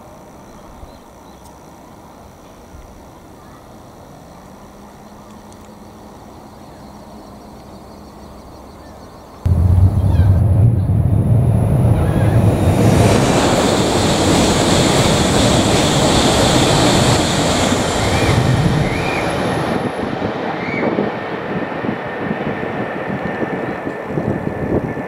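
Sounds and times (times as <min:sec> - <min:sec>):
high-speed train passing: 0:09.5 - 0:25.0.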